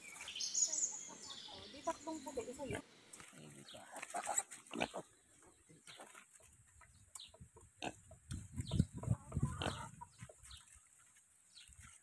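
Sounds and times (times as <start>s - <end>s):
pigs grunting: 2.7s - 5.2s, 9.3s - 10.0s.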